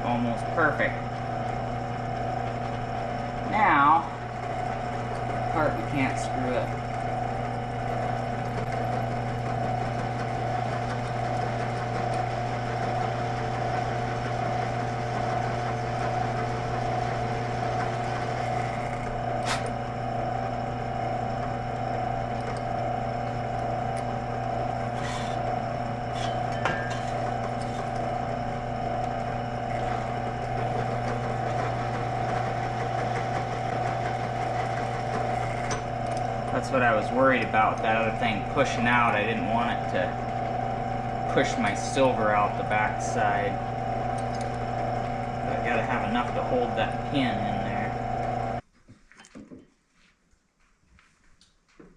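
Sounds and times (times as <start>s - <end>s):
drill press motor running: 0.0s - 48.6s.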